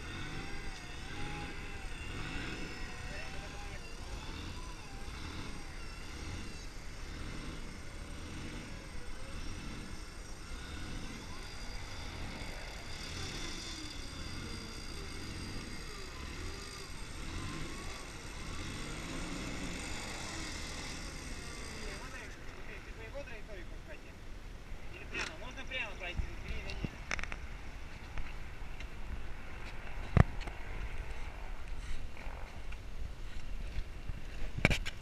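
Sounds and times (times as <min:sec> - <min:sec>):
vehicle engine revving: 0:00.0 - 0:23.1.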